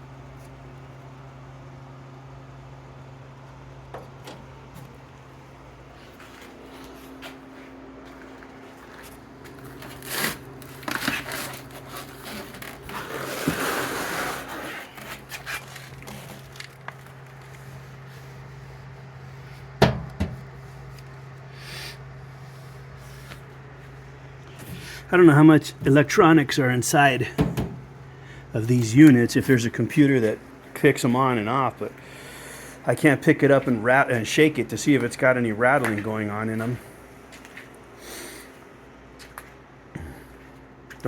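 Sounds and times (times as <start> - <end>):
steady low hum: 0.0 - 41.0
scraping rustle: 6.0 - 18.8.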